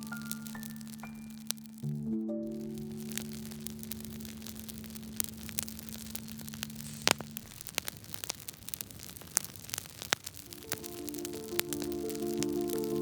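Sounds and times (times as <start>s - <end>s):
soft background music: 0.0s - 7.2s, 10.5s - 13.0s
firewood crackling and popping: 0.0s - 13.0s.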